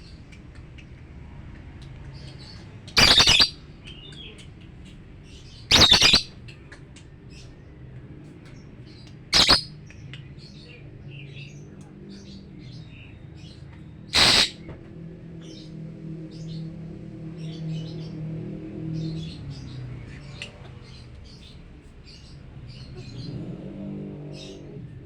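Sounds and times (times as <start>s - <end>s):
faint short chirps: 3.0s - 3.5s
lovebird harsh calls: 3.0s - 3.6s, 5.7s - 6.4s, 9.3s - 9.7s, 14.1s - 14.6s.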